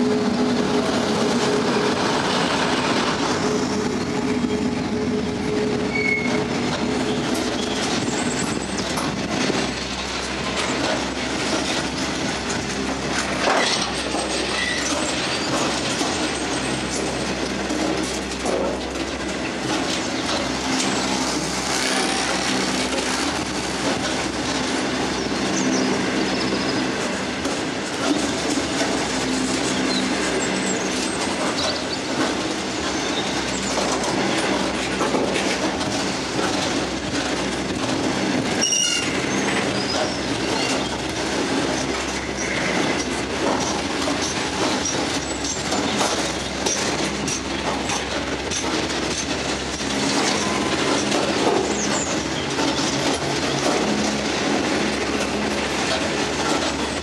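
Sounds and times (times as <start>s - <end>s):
freight train wheels rumbling: 0.0s - 57.0s
high wheel squeals: 3.4s - 8.6s, 38.6s - 40.9s.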